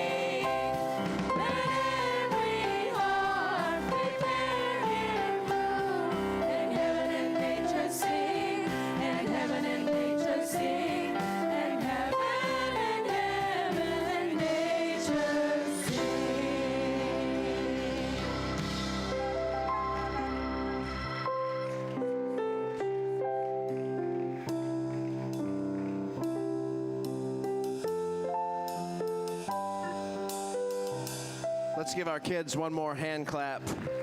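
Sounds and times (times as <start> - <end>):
children's choir singing: 0.0 - 22.0
instrumental accompaniment: 0.0 - 34.0.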